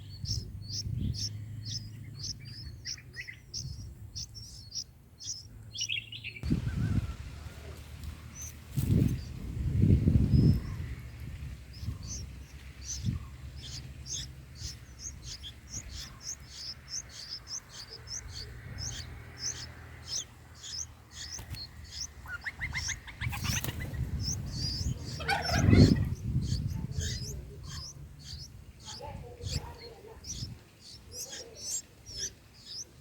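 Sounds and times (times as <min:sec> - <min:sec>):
nestlings chirping: 0:00.0 - 0:33.0.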